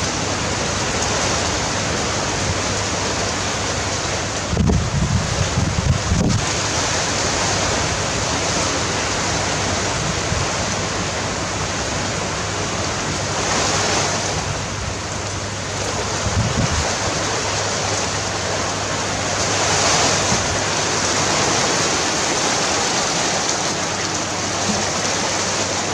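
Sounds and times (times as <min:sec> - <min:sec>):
wind buffeting microphone: 0:00.0 - 0:07.4, 0:13.1 - 0:25.9
strong wind gusting: 0:00.0 - 0:09.0, 0:09.6 - 0:25.9.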